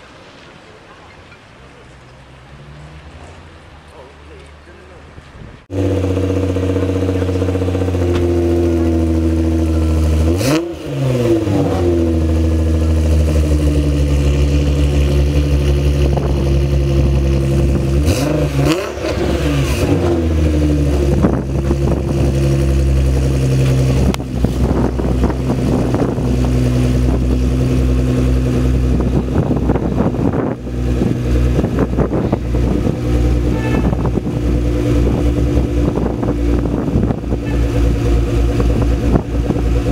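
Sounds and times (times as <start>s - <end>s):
sports car engine running: 5.7s - 39.9s.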